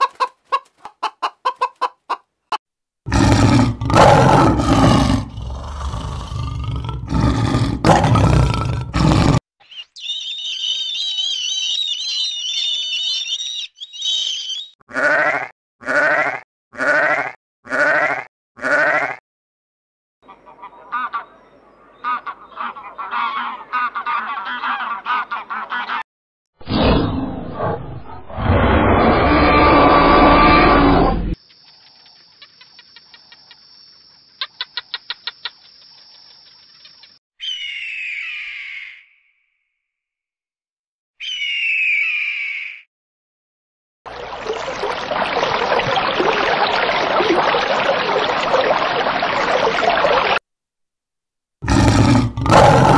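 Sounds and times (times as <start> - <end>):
sharp bird chirps: 9.6 - 14.8, 31.4 - 39.7, 41.2 - 42.9
gulls squealing: 9.6 - 15.1
bird of prey screaming: 9.6 - 16.0, 37.4 - 39.3, 41.2 - 42.9
sheep bleating: 14.9 - 19.2.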